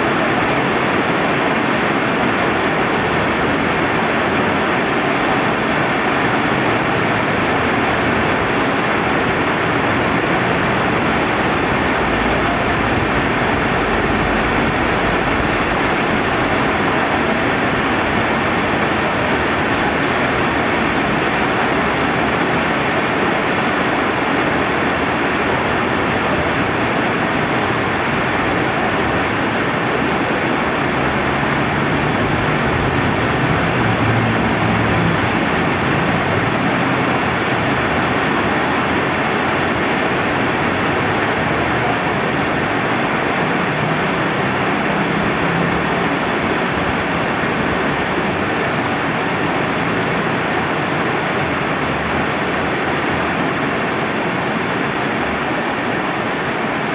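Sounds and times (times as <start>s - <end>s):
river flowing: 0.0s - 56.9s
steady rain falling: 0.0s - 56.9s.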